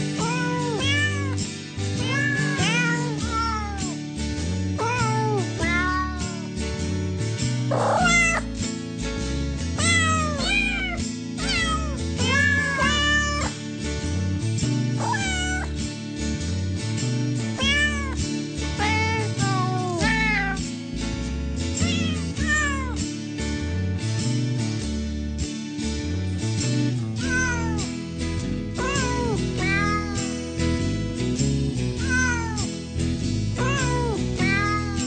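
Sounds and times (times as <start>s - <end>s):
background music: 0.0s - 35.0s
cat meowing: 0.1s - 1.4s, 2.0s - 4.0s, 4.8s - 6.5s, 7.7s - 8.5s, 9.8s - 13.6s, 15.0s - 15.7s, 17.6s - 18.2s, 18.8s - 20.6s, 21.8s - 23.0s, 27.2s - 27.9s, 28.8s - 30.3s, 32.0s - 32.7s, 33.6s - 35.0s.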